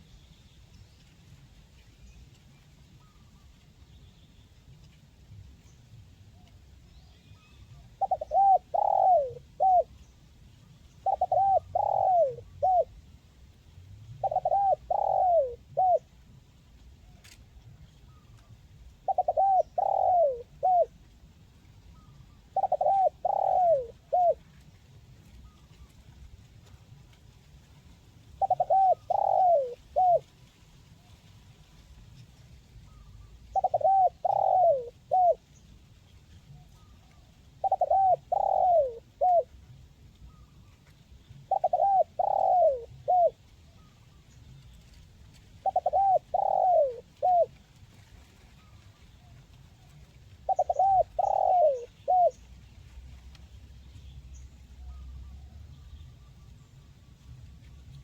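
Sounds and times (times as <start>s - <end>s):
dove cooing: 7.7s - 10.1s, 10.9s - 13.0s, 14.1s - 16.2s, 17.2s - 21.1s, 21.9s - 24.7s, 28.4s - 30.4s, 32.9s - 35.6s, 36.4s - 44.2s, 44.8s - 53.6s.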